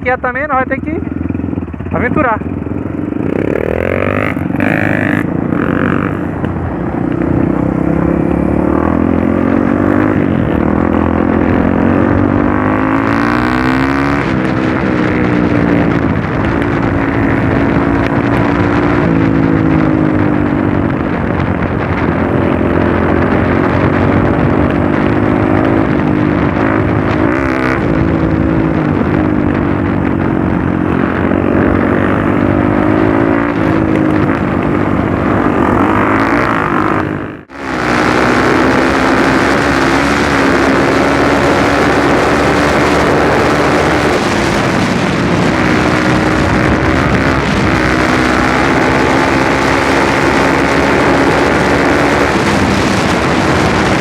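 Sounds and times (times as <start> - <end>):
dirt bike engine revving: 0.8 - 54.0.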